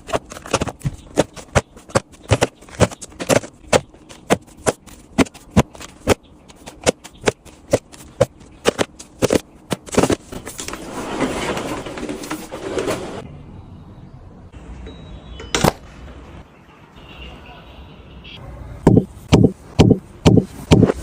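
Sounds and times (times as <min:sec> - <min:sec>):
food containers clicking and tapping: 0:00.0 - 0:10.2.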